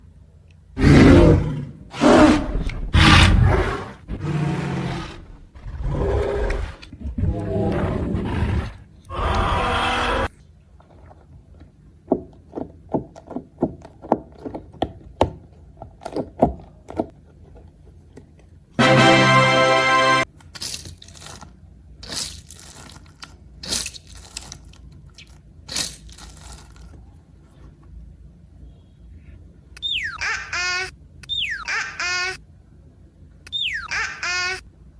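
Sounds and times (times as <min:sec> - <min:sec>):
animal growling roars: 0:00.8 - 0:10.3
slime squelching: 0:20.4 - 0:27.2
slime crackling: 0:20.6 - 0:27.0
cartoon falling whistle: 0:29.8 - 0:32.0, 0:33.5 - 0:34.6.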